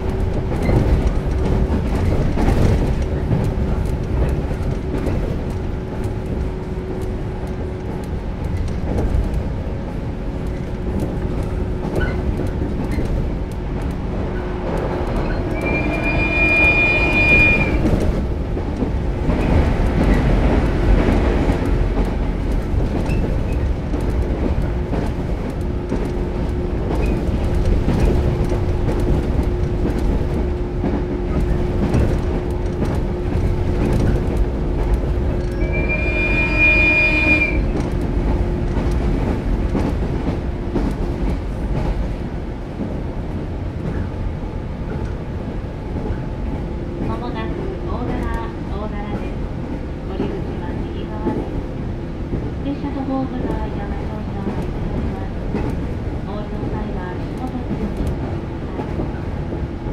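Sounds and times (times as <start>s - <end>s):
train wheels rumbling on rail: 0.0s - 59.9s
high-pitched ringing tone: 15.4s - 17.8s.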